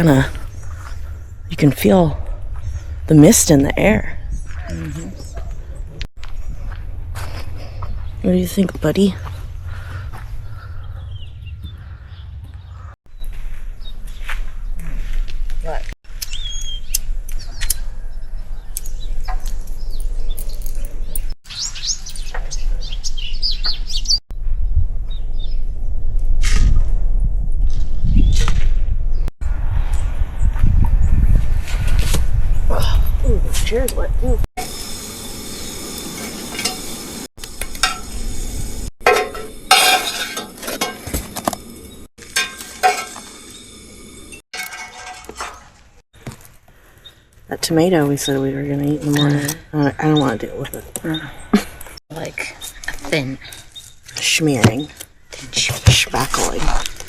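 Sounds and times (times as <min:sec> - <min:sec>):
songbirds chirping: 0:07.7 - 0:14.9, 0:16.1 - 0:24.2, 0:46.7 - 0:56.9
sizzling hiss: 0:34.6 - 0:38.9, 0:41.6 - 0:44.4
utensil clinking against pots: 0:39.0 - 0:41.1, 0:42.2 - 0:43.3, 0:44.6 - 0:45.7.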